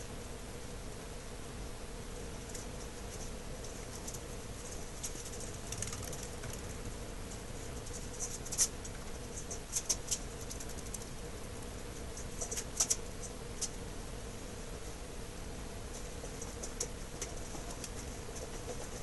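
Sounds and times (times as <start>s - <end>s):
steady low hum: 0.0s - 19.0s
light scratching and clicks: 2.4s - 13.8s, 15.9s - 19.0s.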